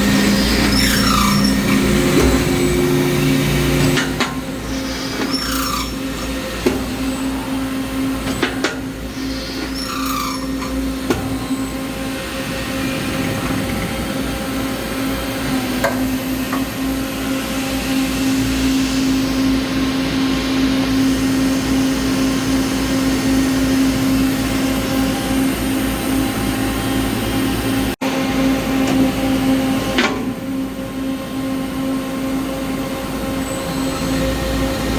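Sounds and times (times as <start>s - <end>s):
loud machine hum: 0.0s - 34.9s.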